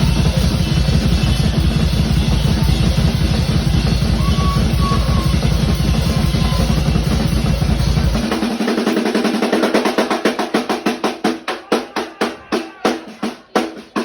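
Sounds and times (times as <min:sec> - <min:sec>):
cymbals washing: 0:00.0 - 0:11.0
fast bass drum strokes: 0:00.0 - 0:11.5
drum roll on higher drums: 0:00.0 - 0:14.0.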